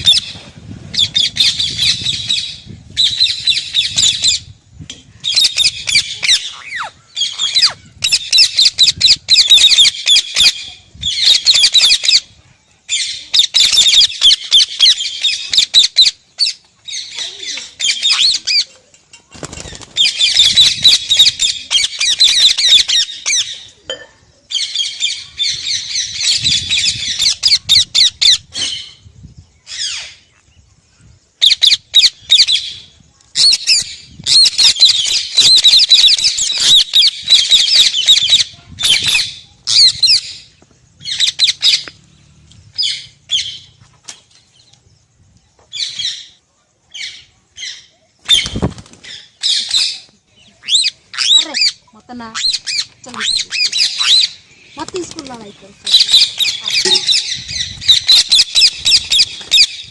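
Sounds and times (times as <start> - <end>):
parrot squawking: 5.3 - 10.6, 50.6 - 54.4, 55.8 - 59.8.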